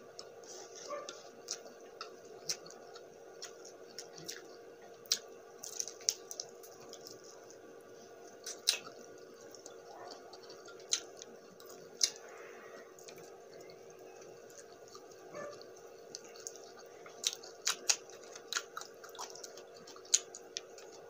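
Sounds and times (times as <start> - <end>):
faint steady hum: 0.0 - 21.0
wet chewing and lip-smacking: 0.1 - 21.0
sticky mouth clicks: 8.5 - 9.0.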